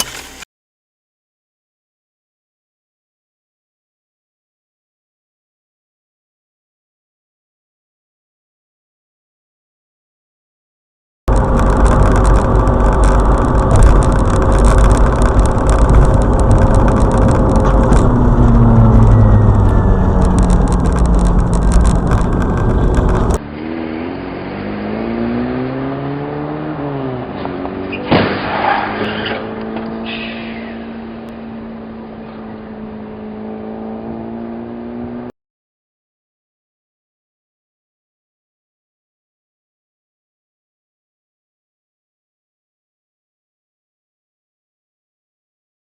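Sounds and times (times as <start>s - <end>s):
car engine pulling through gears: 0.0s - 0.4s, 11.3s - 35.3s
road noise inside car: 0.0s - 0.4s, 11.3s - 35.3s
high squealing: 27.9s - 31.0s
sharp bang: 28.0s - 29.2s.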